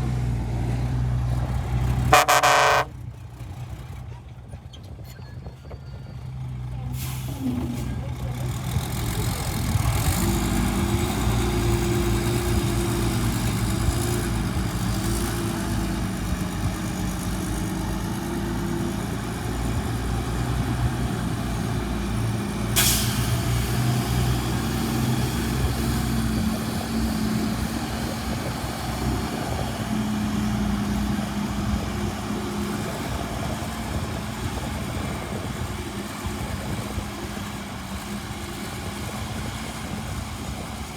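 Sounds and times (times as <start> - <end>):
heavy machine diesel engine: 0.0 - 40.9.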